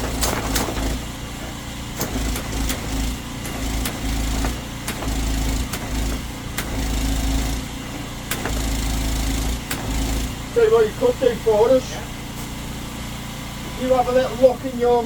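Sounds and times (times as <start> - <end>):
drain jetter engine humming: 0.0 - 15.0
sharp clicks: 2.0 - 6.8, 8.3 - 8.6.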